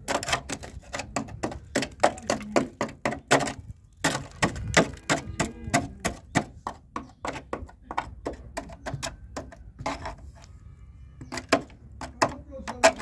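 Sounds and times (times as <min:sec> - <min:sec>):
sharp cracks and knocks: 0:00.0 - 0:10.2.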